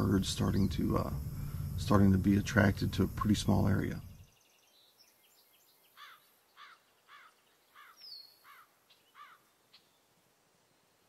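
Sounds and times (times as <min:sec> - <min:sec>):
high bird chirps: 0:04.2 - 0:09.9
bird calling faintly: 0:05.9 - 0:10.1.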